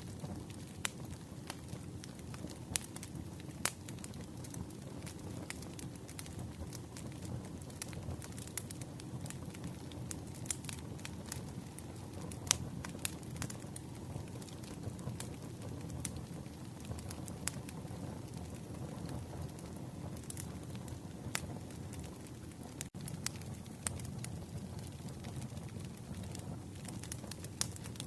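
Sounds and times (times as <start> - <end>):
campfire wood popping and snapping: 0.0 - 28.0
low rumble of flames: 0.0 - 28.0.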